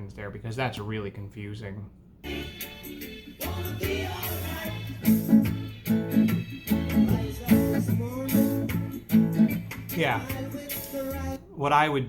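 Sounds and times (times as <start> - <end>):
acoustic guitar strummed: 2.3 - 11.4.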